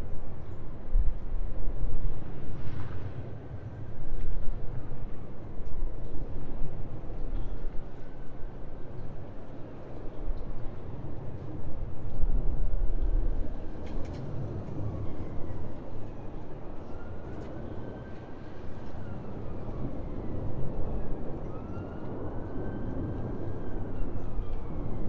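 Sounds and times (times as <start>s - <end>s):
faint jet engine whine: 12.6s - 25.0s.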